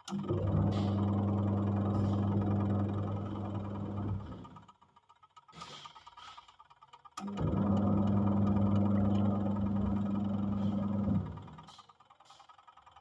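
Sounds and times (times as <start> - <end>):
washing machine motor humming: 0.0 - 4.6, 7.2 - 11.7.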